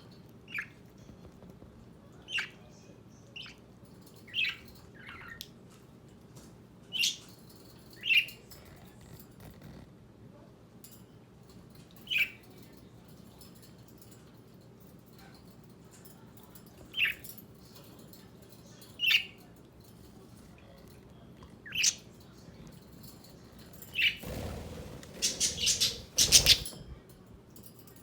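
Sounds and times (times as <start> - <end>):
wings flapping and rustling: 23.0 - 26.9.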